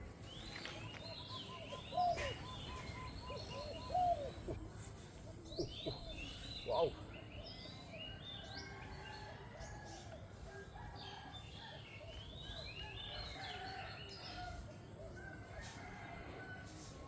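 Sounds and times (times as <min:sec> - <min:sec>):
birds chirping: 0:00.0 - 0:08.8
faint outdoor background noise: 0:00.0 - 0:17.0.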